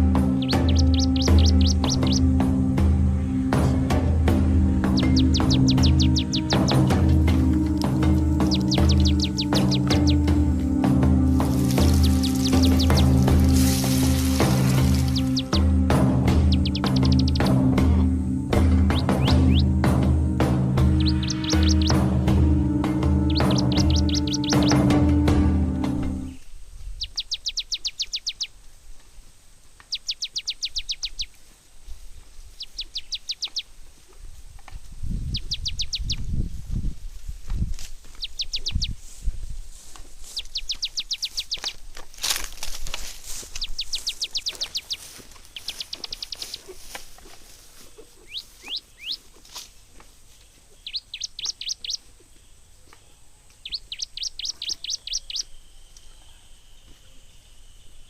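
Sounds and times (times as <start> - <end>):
songbird trilling: 0.0 - 2.4, 4.7 - 15.8, 16.4 - 19.8, 20.8 - 25.1, 26.1 - 28.6, 29.9 - 31.3, 32.5 - 33.7, 35.2 - 36.3, 38.2 - 39.1, 40.2 - 41.8, 43.4 - 46.9, 48.0 - 49.3, 50.7 - 56.6.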